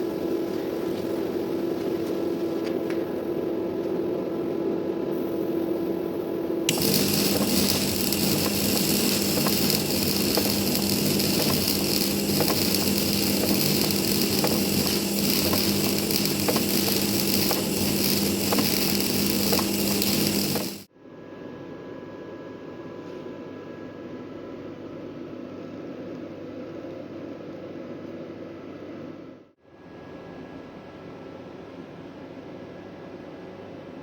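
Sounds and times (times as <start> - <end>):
welding arc crackling: 6.7 - 20.9.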